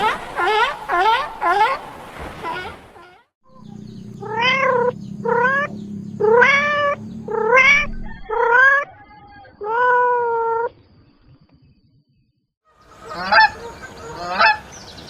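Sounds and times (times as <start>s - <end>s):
animal calling rising in pitch: 0.0s - 10.7s.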